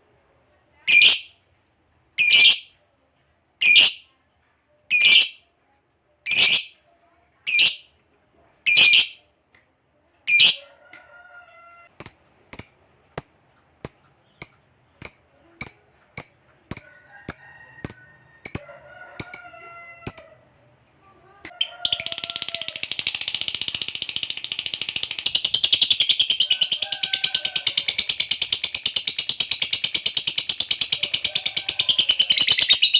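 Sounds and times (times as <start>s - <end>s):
lovebird high chirps: 2.2s - 2.7s, 4.9s - 5.4s, 6.3s - 6.8s, 7.5s - 7.9s, 12.0s - 20.4s.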